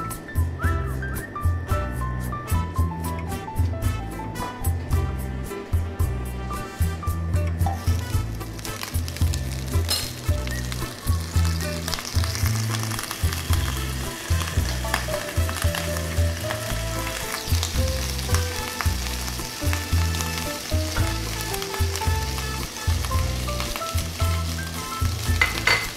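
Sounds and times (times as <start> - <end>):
background music with bass line: 0.0 - 25.9
butter and oil sizzling in pan: 6.7 - 25.9.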